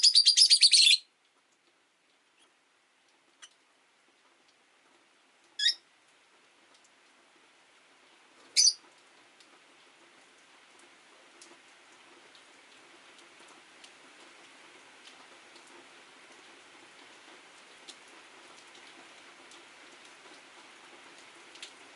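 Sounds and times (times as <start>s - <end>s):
hiss of rain: 0.0s - 21.9s
lovebird chirps: 5.6s - 5.8s, 8.6s - 8.8s.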